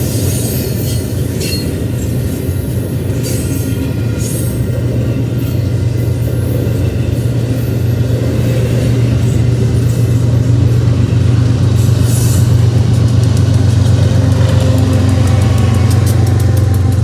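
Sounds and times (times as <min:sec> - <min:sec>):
passing vehicles engine rumble: 0:10.6 - 0:17.0.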